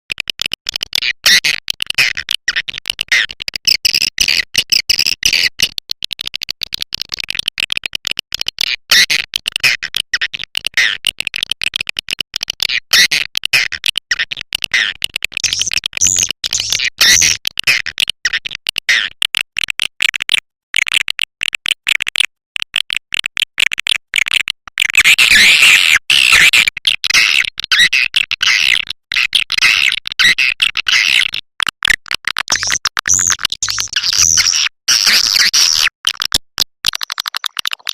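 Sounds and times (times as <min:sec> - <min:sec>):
swiftlet chatter of clicks and chirps: 0:09.4 - 0:25.0, 0:26.2 - 0:37.9.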